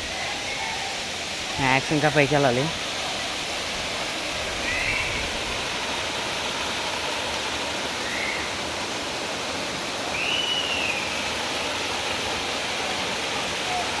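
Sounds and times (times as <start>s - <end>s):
waterfall rushing: 0.0s - 14.0s
high-pitched whistle-like sounds: 10.1s - 11.2s.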